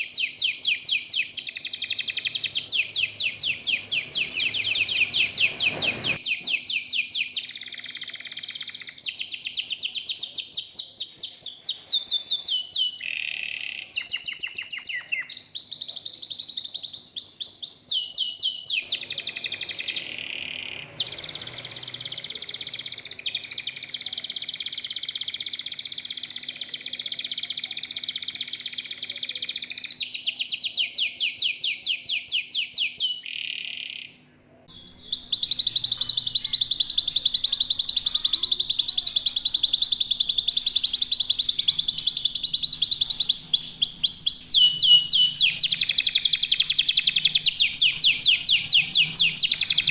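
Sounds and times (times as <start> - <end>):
canary singing trills: 0.0 - 49.9.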